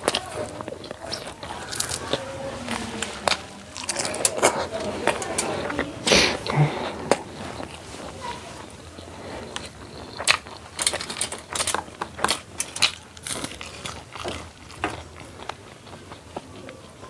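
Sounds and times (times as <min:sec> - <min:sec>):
person chewing food: 0:00.0 - 0:17.0
crunchy clicks: 0:08.8 - 0:15.8.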